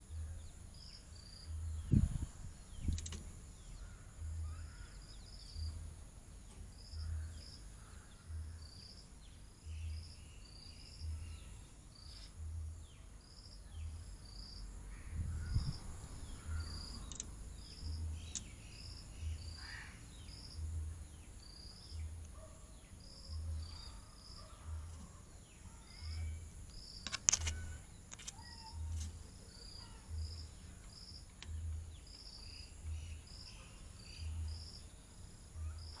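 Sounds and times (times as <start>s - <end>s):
bird calls: 14.9s - 20.6s, 21.2s - 34.8s.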